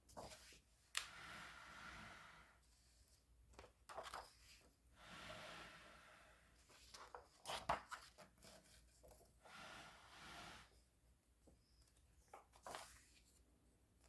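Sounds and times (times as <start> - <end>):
book pages turning: 3.6 - 4.6.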